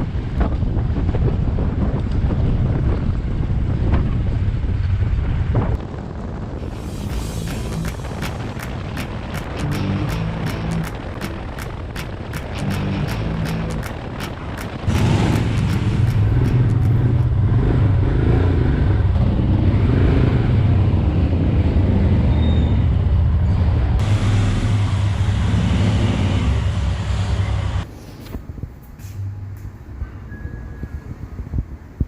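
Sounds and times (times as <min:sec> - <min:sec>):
wind and road noise: 0:00.0 - 0:32.0
motorcycle engine running: 0:06.7 - 0:19.7.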